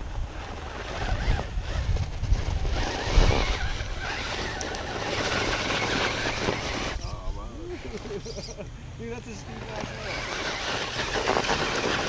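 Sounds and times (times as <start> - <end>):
wind rumbling on microphone: 0.0 - 8.3
tyres scrabbling over rock: 0.3 - 7.2, 9.6 - 12.0
electric motor running: 0.6 - 12.0.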